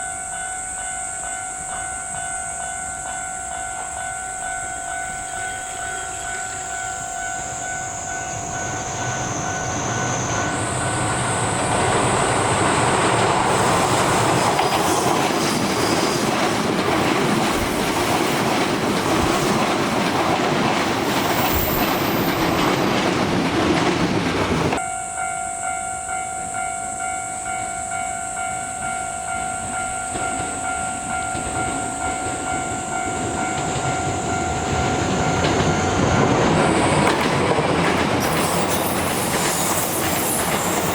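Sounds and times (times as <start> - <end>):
steady ringing tone: 0.0 - 16.8, 24.8 - 36.7
train approaching: 0.0 - 40.9
high insect-like buzz: 6.3 - 16.3
train wheels clattering over rails: 8.0 - 24.8, 30.0 - 40.9.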